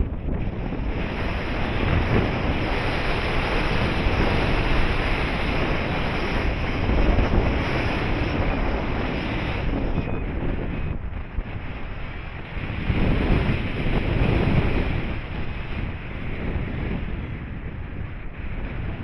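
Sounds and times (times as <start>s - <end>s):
low rumbling gusts: 0.0s - 19.0s
wind buffeting microphone: 0.0s - 19.0s.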